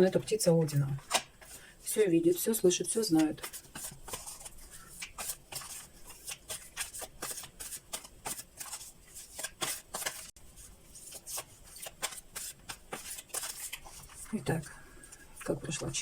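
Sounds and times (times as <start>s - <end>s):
cards being shuffled: 0.6s - 1.6s, 3.0s - 10.3s, 10.9s - 14.4s.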